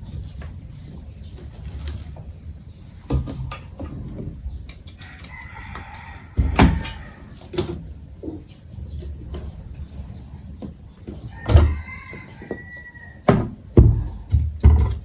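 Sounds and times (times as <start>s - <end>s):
knocks and thumps: 5.8s - 8.5s, 10.6s - 15.0s
chicken calling: 11.2s - 13.3s.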